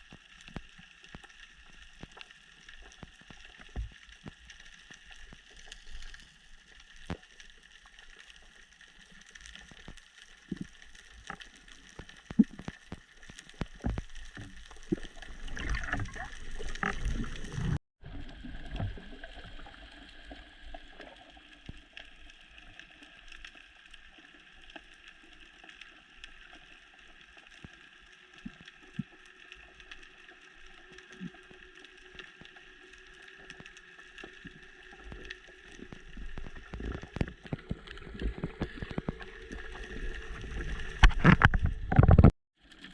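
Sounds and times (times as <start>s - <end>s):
crackling clicks: 0.0s - 17.8s, 18.7s - 42.9s
bubbling: 7.0s - 22.7s, 30.2s - 42.3s.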